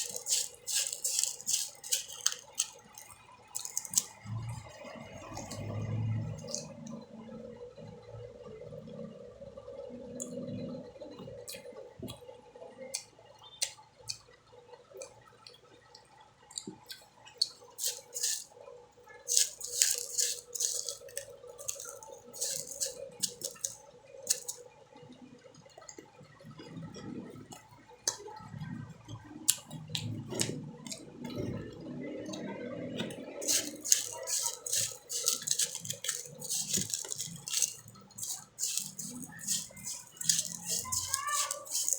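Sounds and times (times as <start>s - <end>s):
biting and chewing: 0.0s - 7.0s, 16.5s - 18.5s, 19.3s - 24.7s, 29.5s - 41.9s.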